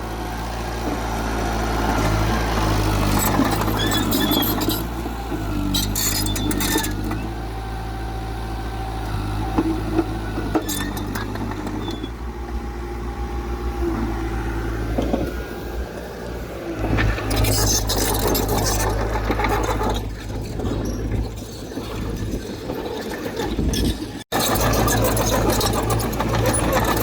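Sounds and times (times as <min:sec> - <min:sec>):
diesel engine running: 0:00.0 - 0:27.0
short metallic rattles: 0:16.8 - 0:27.0.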